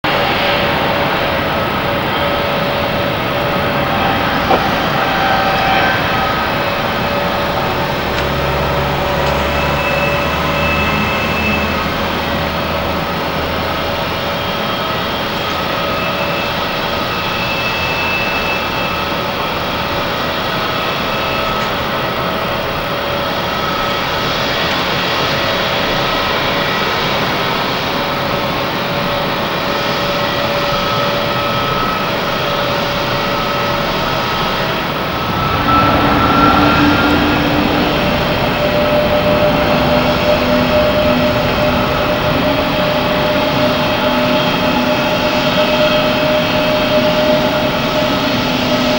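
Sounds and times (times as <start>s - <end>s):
jet engines whining: 0.1s - 48.9s
low hum: 33.2s - 48.9s.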